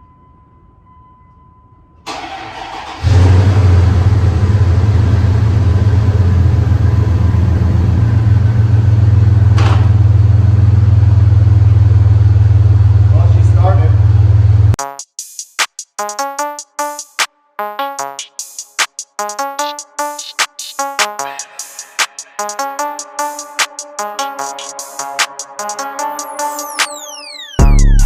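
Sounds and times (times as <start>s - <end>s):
truck engine cranking and running: 2.1s - 14.8s.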